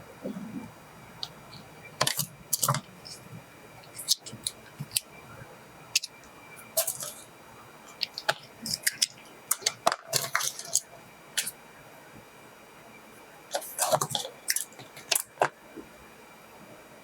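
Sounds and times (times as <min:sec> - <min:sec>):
faint high whine: 0:00.0 - 0:17.0
handling clicks and rustles: 0:01.2 - 0:05.2, 0:05.9 - 0:11.6, 0:13.5 - 0:15.6.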